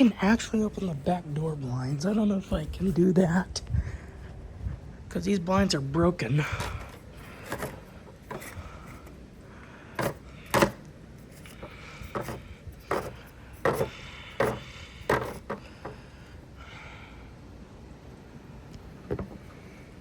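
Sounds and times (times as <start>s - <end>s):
blind slats rubbing: 6.6s - 16.1s
window blind slats clacking: 6.8s - 9.2s, 10.0s - 16.0s.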